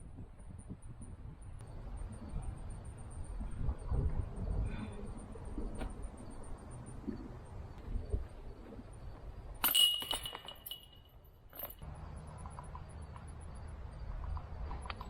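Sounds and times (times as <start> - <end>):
wind rumble on microphone: 0.0 - 9.6
disc striking metal basket: 9.6 - 11.0.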